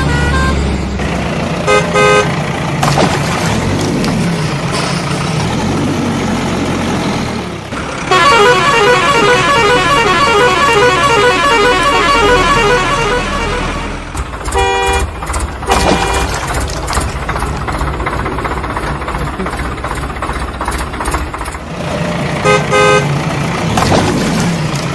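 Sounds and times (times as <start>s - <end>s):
vehicle musical horn tune: 0.0s - 0.7s, 1.6s - 2.3s, 8.1s - 15.1s, 15.7s - 16.4s, 22.4s - 23.1s
engine rumble: 0.0s - 24.9s
short horn honks: 8.1s - 13.9s, 14.5s - 15.1s, 15.7s - 16.4s.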